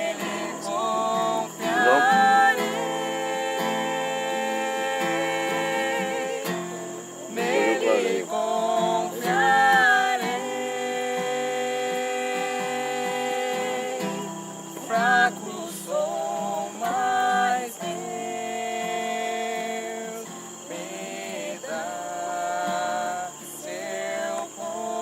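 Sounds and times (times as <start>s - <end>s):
person singing: 0.0s - 6.6s, 7.4s - 14.1s
acoustic guitar: 0.0s - 25.0s.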